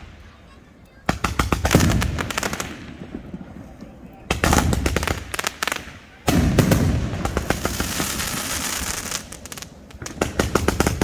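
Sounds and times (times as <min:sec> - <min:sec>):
firework volley of shots: 0:00.0 - 0:11.0
crackling of sharp pops: 0:00.8 - 0:11.0
firework hiss: 0:04.3 - 0:11.0.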